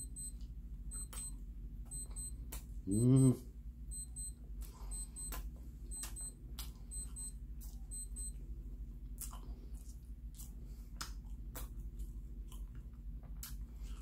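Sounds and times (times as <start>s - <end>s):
electronic device beeping: 0.0s - 2.4s, 3.9s - 5.3s, 7.9s - 8.3s
man chewing pastry: 4.4s - 14.0s.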